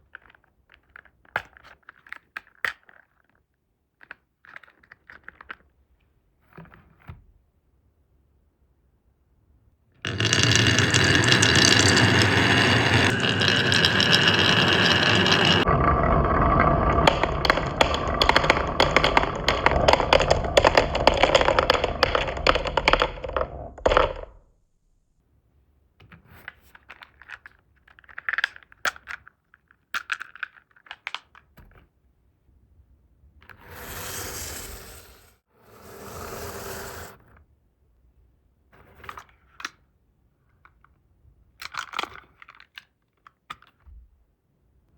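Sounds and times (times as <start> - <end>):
marbles rolling down wooden run: 10.1 - 24.4.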